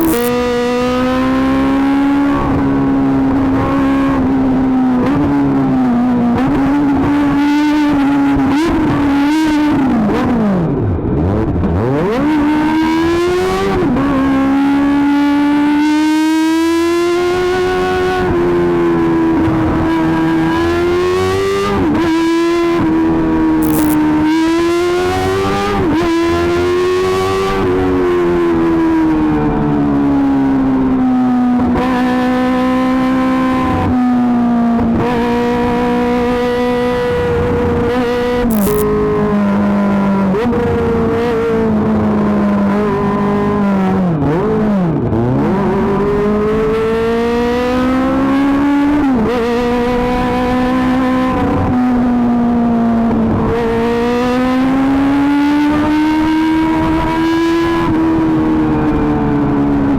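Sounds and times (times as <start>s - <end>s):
motorcycle engine at high revs: 0.0s - 5.5s, 23.6s - 28.0s, 38.2s - 39.3s.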